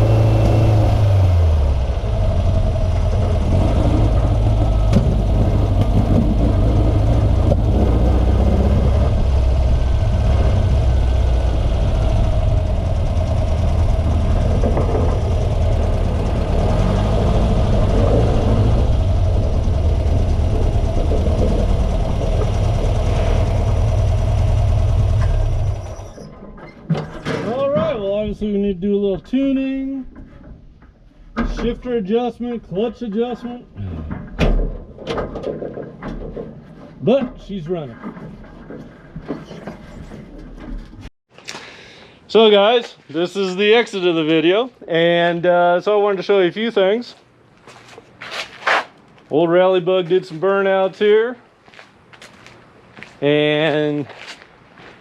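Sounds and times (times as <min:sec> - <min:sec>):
car engine running: 0:00.0 - 0:26.2.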